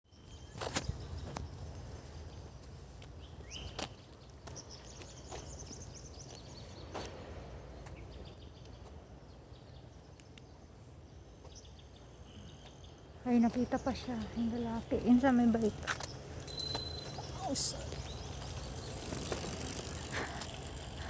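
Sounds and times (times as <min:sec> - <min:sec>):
faint high chirps: 0:16.4 - 0:18.4.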